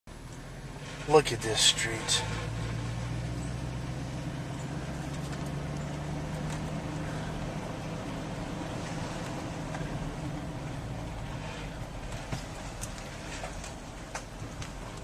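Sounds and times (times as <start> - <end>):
vehicle engine humming: 0.1 - 15.0.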